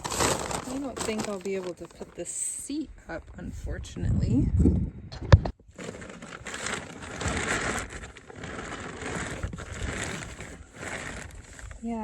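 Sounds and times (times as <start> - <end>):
plastic scraping and rustling: 0.0 - 2.5, 5.7 - 12.0.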